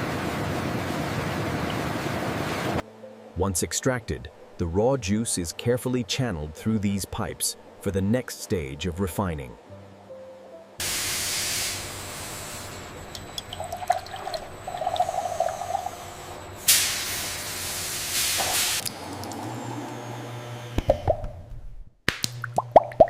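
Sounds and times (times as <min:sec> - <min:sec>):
water dripping: 0:13.0 - 0:16.4, 0:18.8 - 0:19.5, 0:22.2 - 0:23.0
liquid gurgling and splashing: 0:13.2 - 0:16.4
hissing rush of spray: 0:15.1 - 0:18.8.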